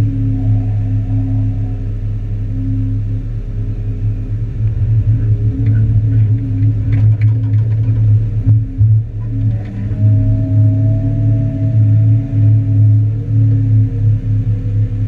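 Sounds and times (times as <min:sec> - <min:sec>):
excavator engine running: 0:00.0 - 0:15.0
faint knocks and clicks: 0:05.5 - 0:09.9.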